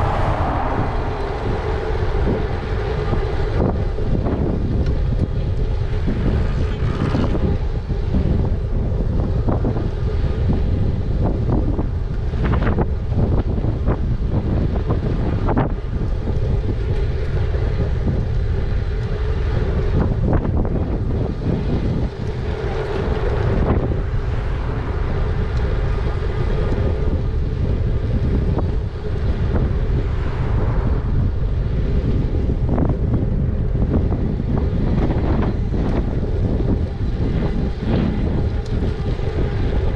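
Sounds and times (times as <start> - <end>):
faint hum: 0.0 - 14.0
wind buffeting microphone: 0.0 - 39.9.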